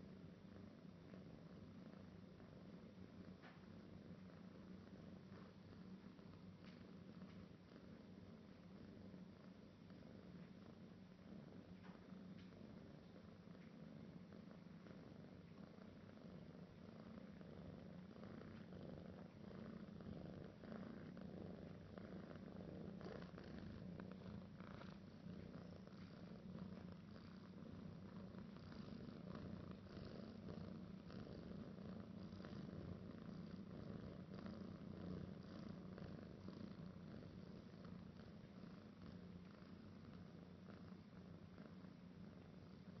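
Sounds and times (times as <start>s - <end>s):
kitten purring: 0.0s - 43.0s.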